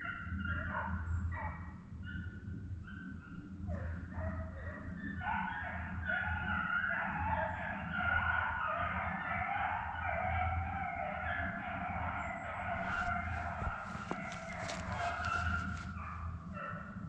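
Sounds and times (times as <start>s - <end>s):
hounds howling and bawling: 0.0s - 17.0s
steady low hum: 11.5s - 17.0s.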